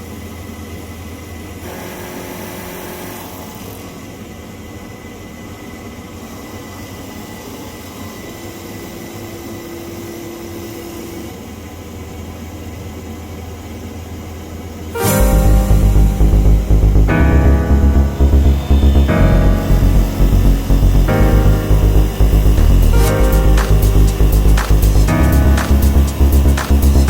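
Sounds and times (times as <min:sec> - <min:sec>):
faint tone: 0:15.0 - 0:26.4.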